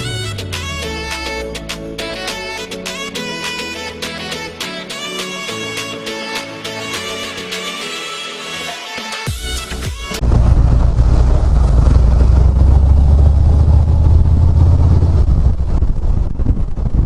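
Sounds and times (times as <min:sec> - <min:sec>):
motorcycle engine rumbling: 0:00.0 - 0:02.7, 0:10.2 - 0:17.0
wind buffeting microphone: 0:10.2 - 0:17.0.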